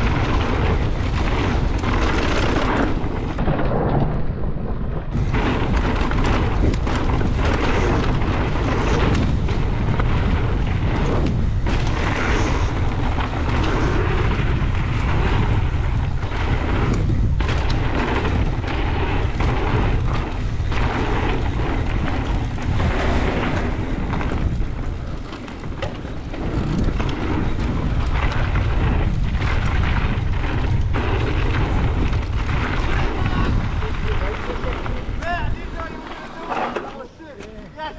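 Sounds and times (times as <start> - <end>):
wind buffeting microphone: 0.0 - 37.3
bike rumbling and rattling on dirt: 0.0 - 37.7.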